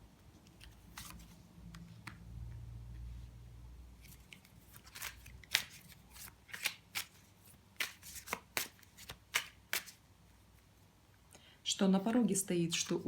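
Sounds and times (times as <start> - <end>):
cards being shuffled by hand: 0.4 - 2.2, 4.0 - 10.0.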